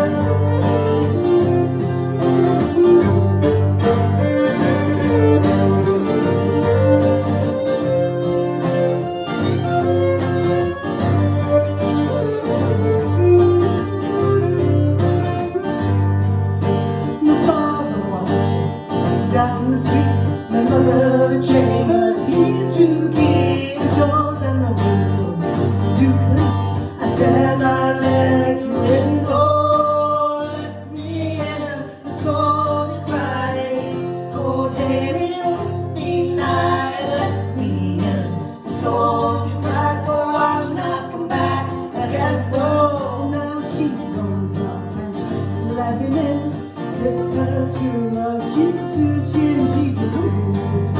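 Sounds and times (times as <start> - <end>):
fiddle melody: 0.0 - 17.2
acoustic guitar accompaniment: 0.0 - 50.9.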